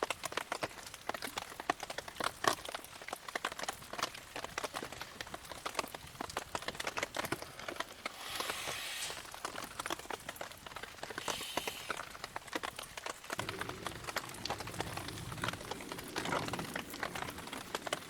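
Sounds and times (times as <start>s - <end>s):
campfire crackling: 0.0s - 18.0s
fire hissing: 7.6s - 12.5s.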